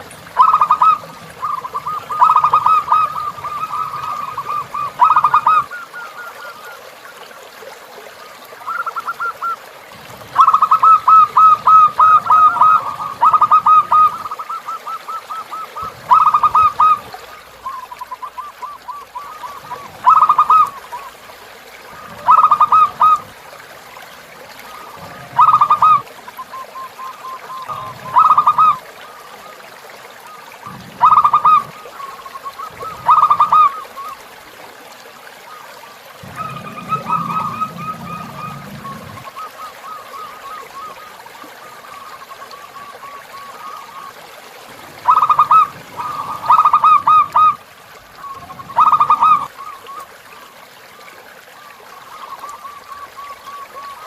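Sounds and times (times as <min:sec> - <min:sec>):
dove cooing: 0:00.0 - 0:06.8, 0:10.3 - 0:21.2, 0:21.9 - 0:23.4, 0:24.7 - 0:28.9, 0:30.6 - 0:34.1, 0:36.2 - 0:41.0, 0:45.0 - 0:47.6, 0:48.2 - 0:50.0
river trickling: 0:00.0 - 0:54.0.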